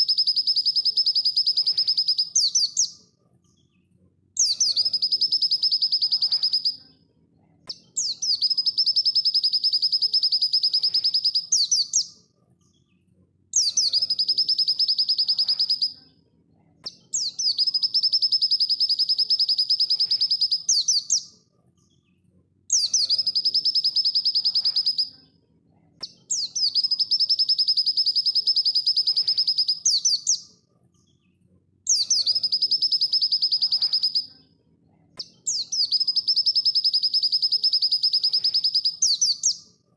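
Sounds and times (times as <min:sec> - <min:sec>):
bird singing rattling trill: 0:00.0 - 0:03.0, 0:04.4 - 0:06.8, 0:08.0 - 0:12.1, 0:13.6 - 0:16.0, 0:17.2 - 0:21.3, 0:22.7 - 0:25.1, 0:26.2 - 0:30.4, 0:31.9 - 0:34.3, 0:35.4 - 0:39.6.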